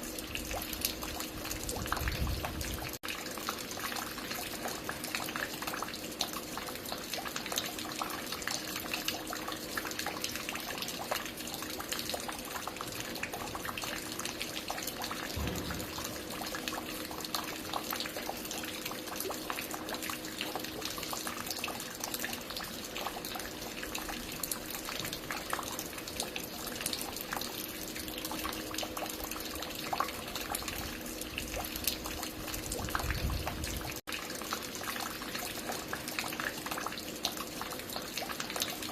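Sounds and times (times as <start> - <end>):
water falling and dripping: 0.0 - 38.9
low thud: 15.4 - 16.8.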